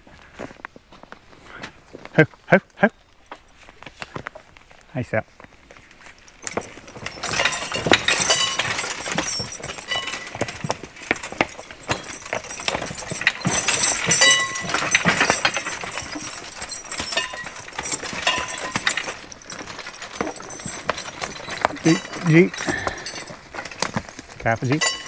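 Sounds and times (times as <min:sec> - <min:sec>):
hooves clopping: 0:00.4 - 0:25.0
wagon rattling over rocks: 0:01.5 - 0:25.0
harness chains clinking: 0:05.4 - 0:25.0.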